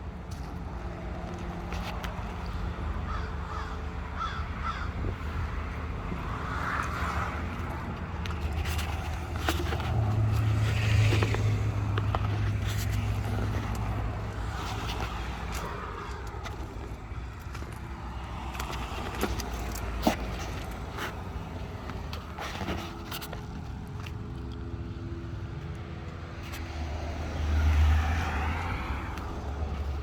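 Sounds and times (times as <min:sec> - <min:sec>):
crows cawing: 0:03.1 - 0:05.1.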